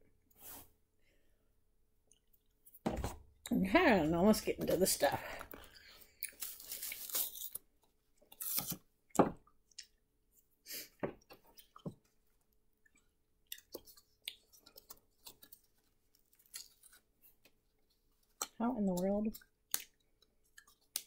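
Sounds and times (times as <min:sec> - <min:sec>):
plastic container and wrapper crinkling: 0:04.3 - 0:07.7
chewing gummy candy: 0:12.8 - 0:21.0.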